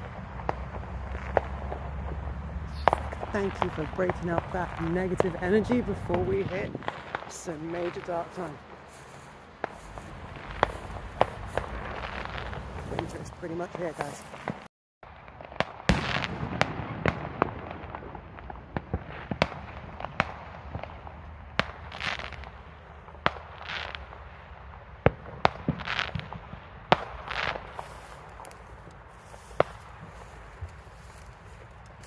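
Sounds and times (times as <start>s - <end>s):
fireworks bangs and pops: 0.0s - 32.0s
fireworks hissing: 2.7s - 14.7s, 27.2s - 31.7s.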